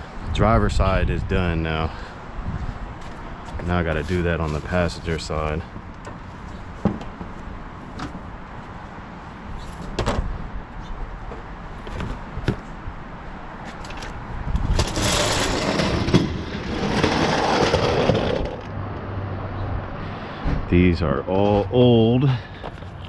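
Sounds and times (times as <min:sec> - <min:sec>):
loud rustling and scraping: 0:02.0 - 0:08.8, 0:13.6 - 0:18.7.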